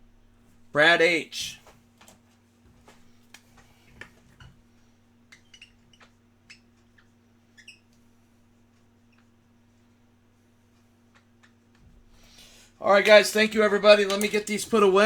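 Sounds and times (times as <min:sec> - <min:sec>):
small objects clicking on tabletop: 0:13.1 - 0:15.0.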